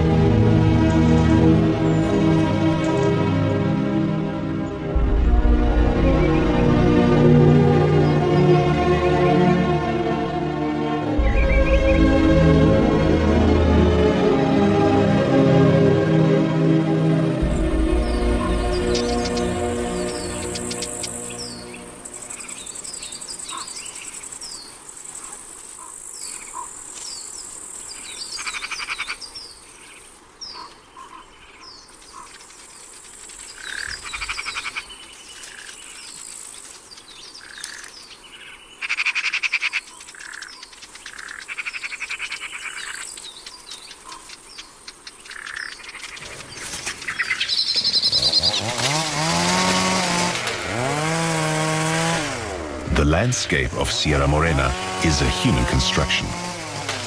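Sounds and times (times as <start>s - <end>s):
rapid pulsed calls: 0.0s - 14.8s, 16.4s - 57.0s
birds chirping: 0.0s - 57.0s
high insect buzz: 17.4s - 52.9s
chainsaw engine revving: 47.9s - 57.0s.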